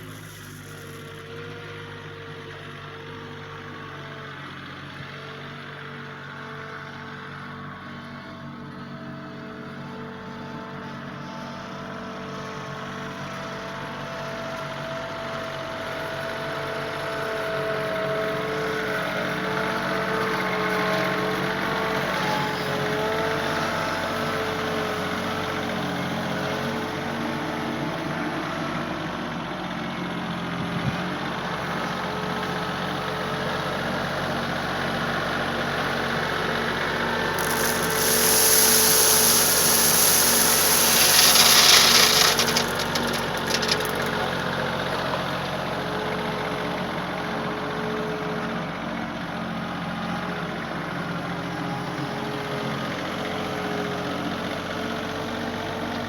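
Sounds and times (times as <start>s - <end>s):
loud hissing rush: 37.4s - 44.1s.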